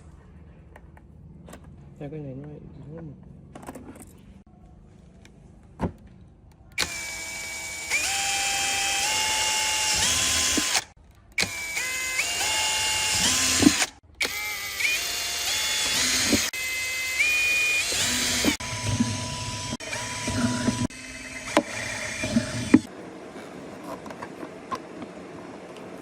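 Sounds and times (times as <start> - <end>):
electric motor whine: 6.8 - 24.0.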